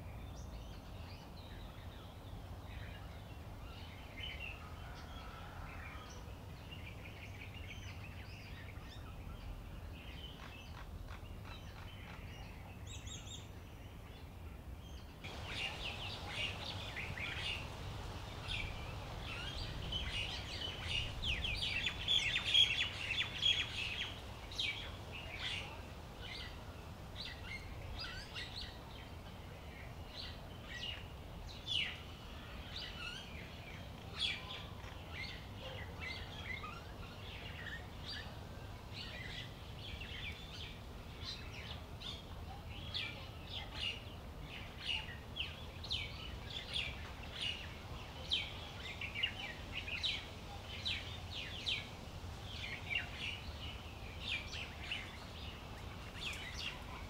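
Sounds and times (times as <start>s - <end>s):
birds chirping: 15.0s - 26.6s, 39.0s - 57.0s.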